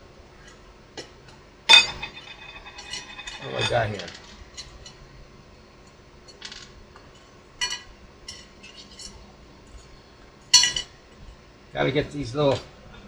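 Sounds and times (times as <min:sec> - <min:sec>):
small hard parts clinking: 0:01.7 - 0:04.4.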